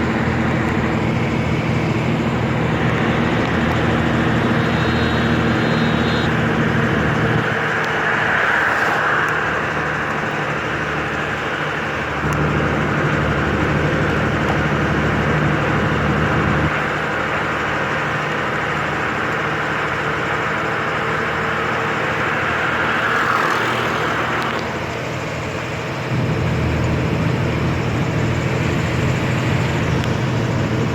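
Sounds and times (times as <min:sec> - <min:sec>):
rushing noise: 0:00.0 - 0:16.8
road noise: 0:00.0 - 0:30.9
truck engine running: 0:00.0 - 0:30.9.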